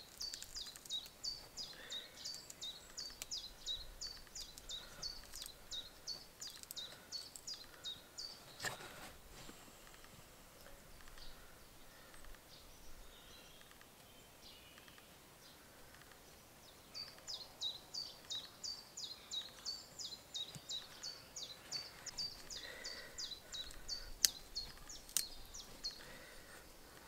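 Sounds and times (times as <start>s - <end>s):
sharp clicks: 2.2s - 3.4s, 11.0s - 11.3s, 13.6s - 14.1s.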